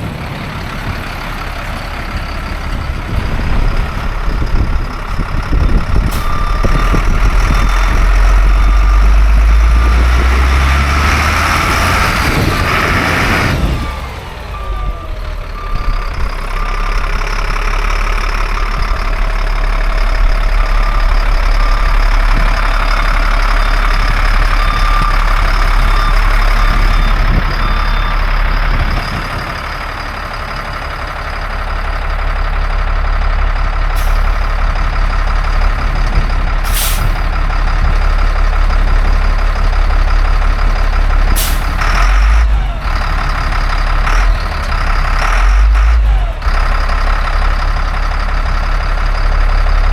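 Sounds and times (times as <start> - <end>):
diesel truck engine under load: 0.0 - 49.9
backup alarm beeping: 5.5 - 10.4, 20.6 - 29.6.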